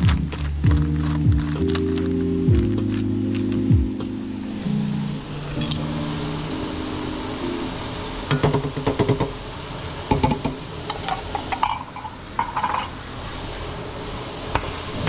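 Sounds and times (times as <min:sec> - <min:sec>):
faint sizzle: 0:00.0 - 0:15.0
clinks and knocks against pot: 0:10.1 - 0:12.9
utensil scraping metal pot: 0:10.9 - 0:13.4.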